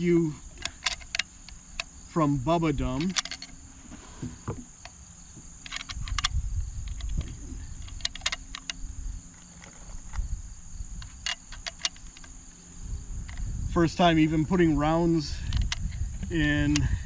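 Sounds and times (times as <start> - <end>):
high insect drone: 0.0 - 17.0
cartridges clicking into magazine: 0.6 - 2.0, 3.0 - 3.6, 5.6 - 10.2, 11.0 - 12.4.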